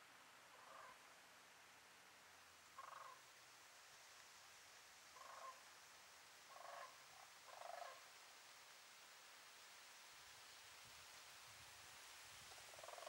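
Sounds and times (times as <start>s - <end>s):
steady soft hiss: 0.0s - 13.0s
faint bird calls: 0.5s - 1.0s, 2.8s - 3.2s, 5.2s - 5.6s, 6.5s - 8.0s, 12.7s - 13.0s.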